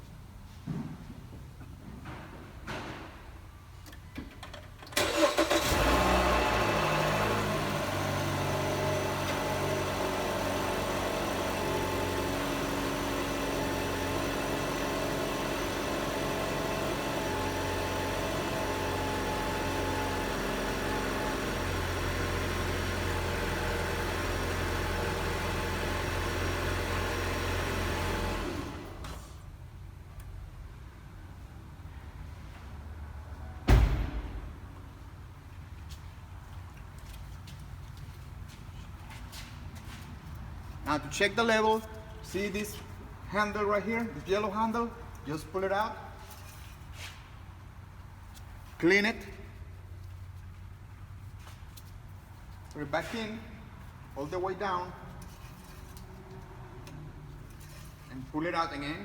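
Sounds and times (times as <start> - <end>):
car engine cranking and starting: 4.4 - 29.1.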